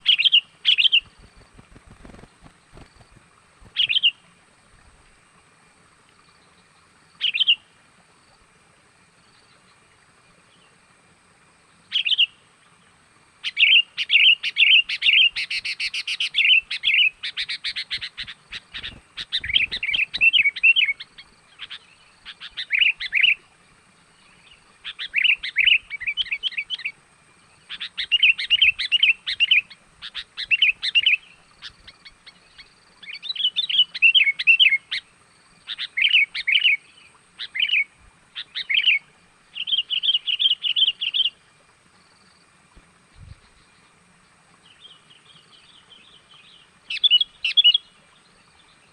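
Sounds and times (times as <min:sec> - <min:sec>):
bird chirping: 0:13.4 - 0:23.4, 0:27.6 - 0:35.0, 0:44.6 - 0:48.9.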